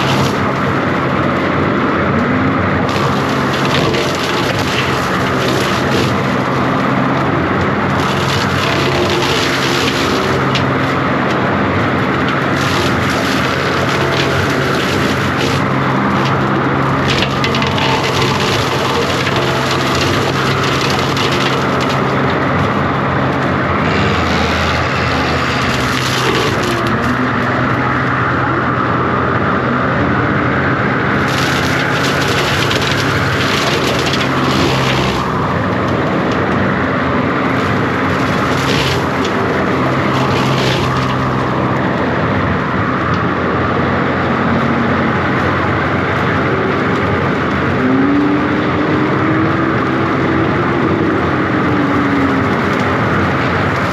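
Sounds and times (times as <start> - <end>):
diesel engine under load: 0.0 - 53.9
brush and limbs cracking: 2.8 - 28.4, 31.1 - 42.7.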